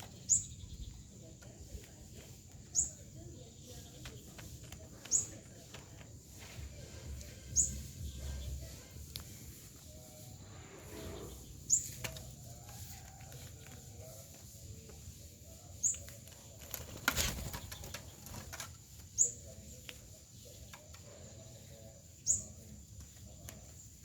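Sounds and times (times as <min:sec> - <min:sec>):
small bird chirping: 0:00.0 - 0:24.0
wings flapping: 0:16.0 - 0:19.0.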